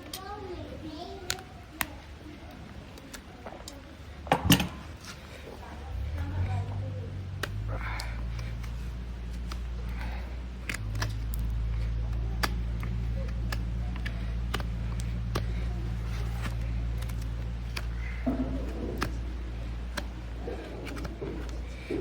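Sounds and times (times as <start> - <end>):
steady low hum: 0.0 - 22.0
hoof knife clicks and scrapes: 7.4 - 22.0.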